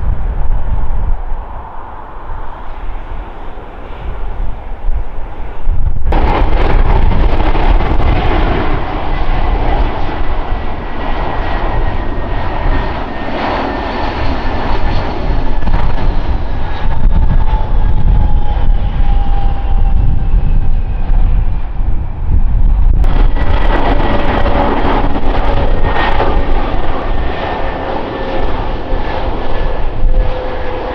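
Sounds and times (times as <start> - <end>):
airliner engines roaring: 0.0 - 30.9.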